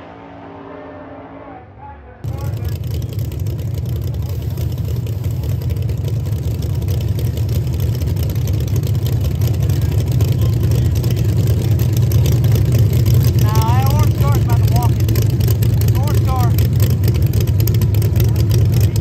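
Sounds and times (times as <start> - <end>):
drag car engines idling: 0.0 - 19.0.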